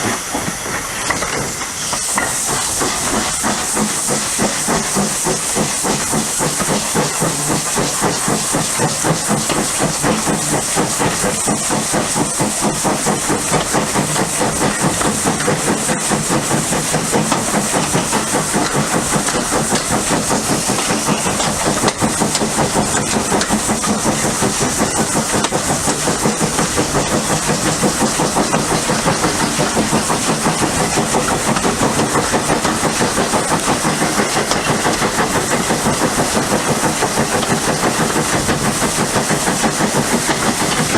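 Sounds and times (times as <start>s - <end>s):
steam hissing: 0.0s - 40.9s
steam locomotive exhaust beats: 0.0s - 40.9s.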